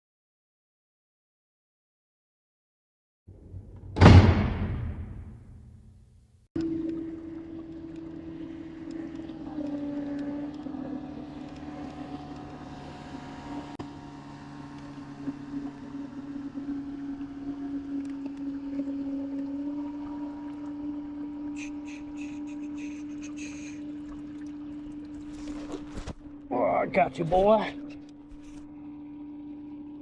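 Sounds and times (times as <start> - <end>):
electric trolling motor humming: 6.6 - 30.0.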